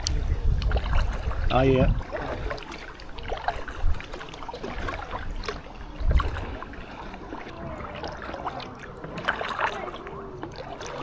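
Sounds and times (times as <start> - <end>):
paddle strokes in water: 0.0 - 11.0
water dripping and trickling: 0.0 - 11.0.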